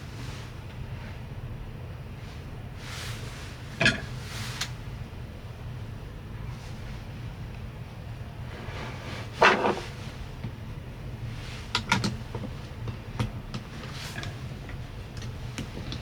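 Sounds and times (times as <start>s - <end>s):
steady low hum: 0.0s - 16.0s
knocks and clunks of handling: 9.3s - 10.6s.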